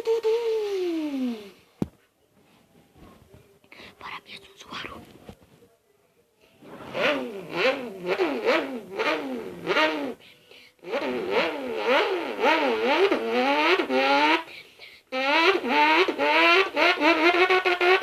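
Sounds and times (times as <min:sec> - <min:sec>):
person imitating car engine: 0:00.0 - 0:01.6, 0:07.0 - 0:10.2, 0:10.8 - 0:18.0.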